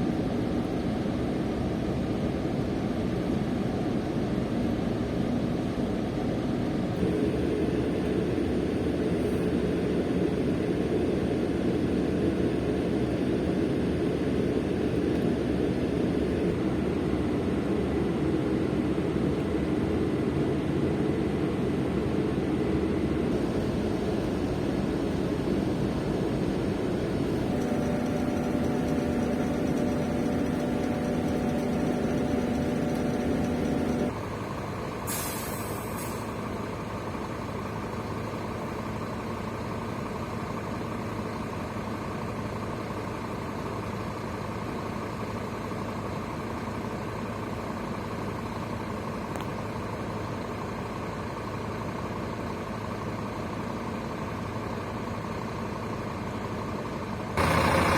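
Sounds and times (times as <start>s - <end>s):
diesel engine running: 7.0s - 16.8s, 23.0s - 57.9s
air brake hiss: 35.0s - 36.4s.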